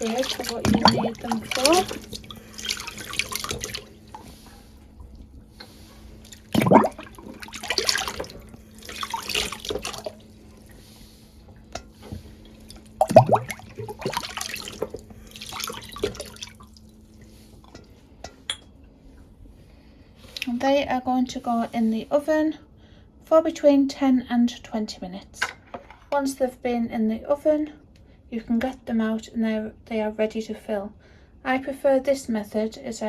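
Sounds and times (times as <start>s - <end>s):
water splashing and dripping: 0.0s - 11.0s, 12.0s - 17.8s.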